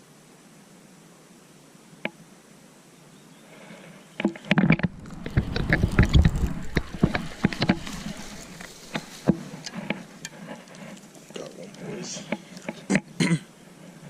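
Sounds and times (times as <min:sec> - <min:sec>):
water sloshing and splashing: 0:04.8 - 0:11.5.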